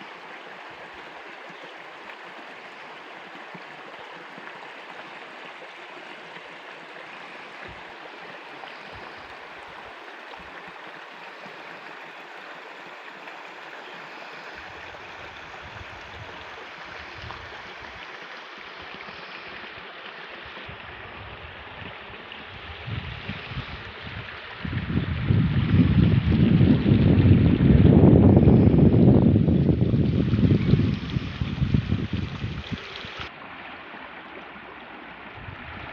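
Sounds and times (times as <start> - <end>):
stream water rushing: 0.0 - 35.9
wind buffeting microphone: 14.7 - 18.0, 20.7 - 33.3, 35.3 - 35.9.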